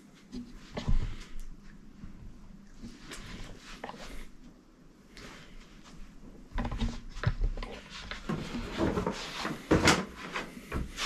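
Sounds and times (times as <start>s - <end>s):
handling knocks and rustles: 6.5s - 11.0s.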